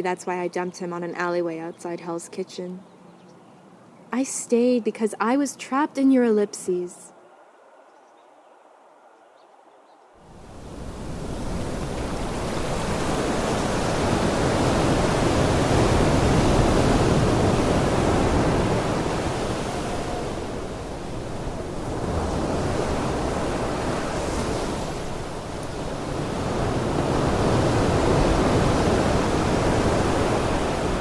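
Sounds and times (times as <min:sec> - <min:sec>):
ocean waves washing: 0:10.2 - 0:31.0.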